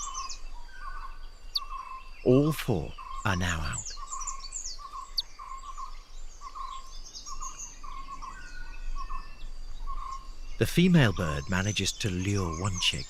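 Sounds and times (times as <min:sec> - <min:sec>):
thin bird chirps and whistles: 0:00.0 - 0:10.6
forest birds calling: 0:00.0 - 0:13.0.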